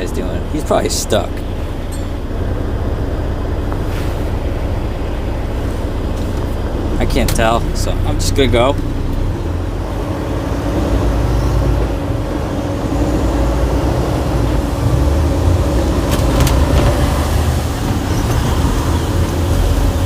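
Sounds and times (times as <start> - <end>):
diesel truck engine rumbling: 0.0 - 20.0.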